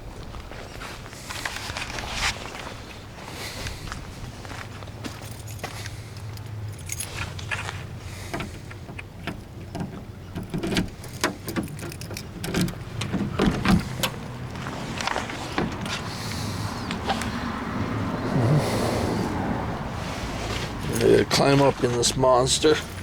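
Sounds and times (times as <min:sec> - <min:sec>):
keys jangling: 0:05.1 - 0:14.2, 0:22.6 - 0:23.0.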